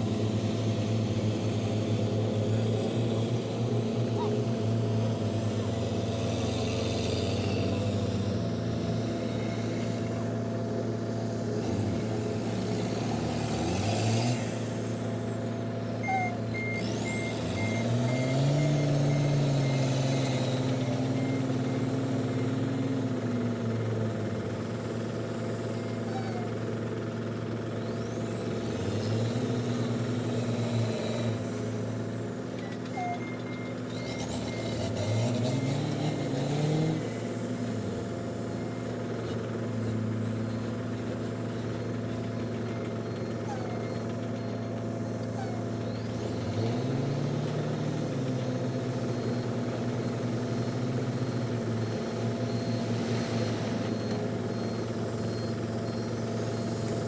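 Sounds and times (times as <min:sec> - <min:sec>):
dump truck engine revving: 0:00.0 - 0:57.0
reversing alarm beeping: 0:16.0 - 0:22.7, 0:48.8 - 0:57.0.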